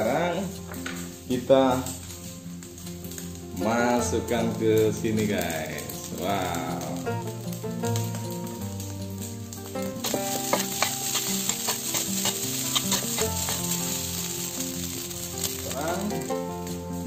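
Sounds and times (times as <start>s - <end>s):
rice sizzling in a wok: 0.0s - 17.0s
spatula clicking and scraping pan: 10.0s - 15.6s.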